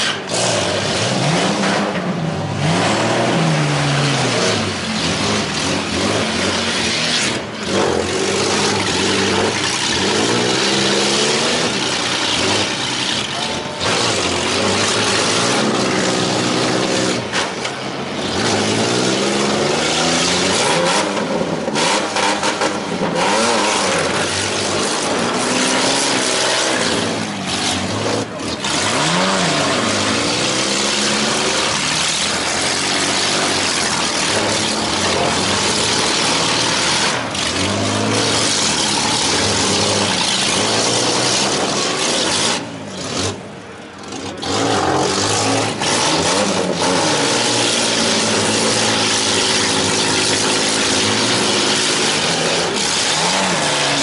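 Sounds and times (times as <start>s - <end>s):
many car engines revving: 0.0s - 54.0s.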